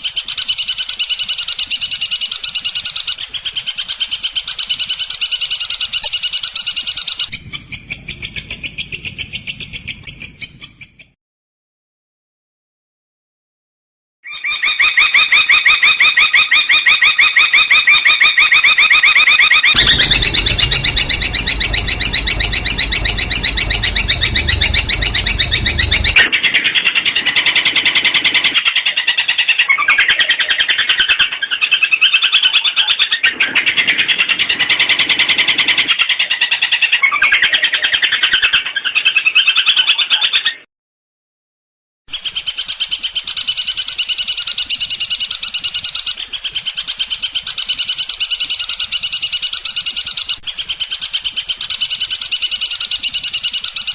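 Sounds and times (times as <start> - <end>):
low rumble: 19.8 - 26.3.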